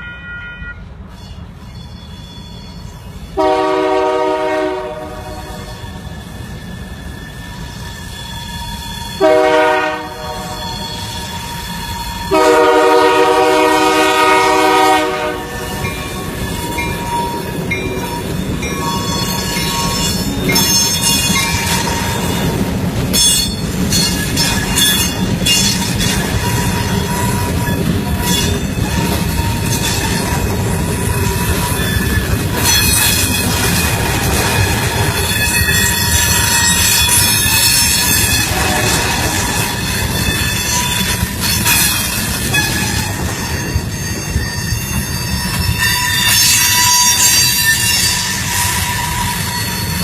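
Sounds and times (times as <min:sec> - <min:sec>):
train horn blasts: 0:00.0 - 0:01.0, 0:03.4 - 0:06.0, 0:09.2 - 0:17.5, 0:35.8 - 0:43.7
train engine rumble: 0:00.0 - 0:50.0
wheels clattering and squealing on rails: 0:00.0 - 0:50.0.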